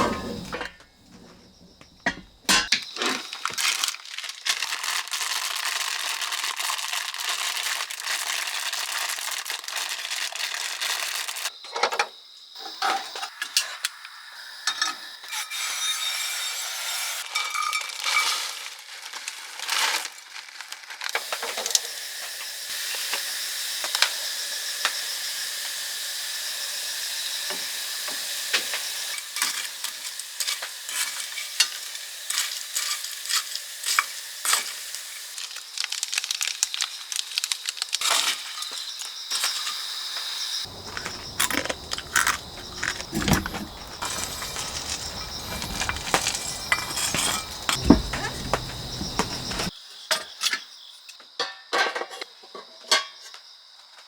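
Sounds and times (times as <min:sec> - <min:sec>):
food sizzling and crackling: 0:02.9 - 0:11.5, 0:27.8 - 0:39.6, 0:40.6 - 0:49.7
deeper rumble: 0:40.7 - 0:49.7.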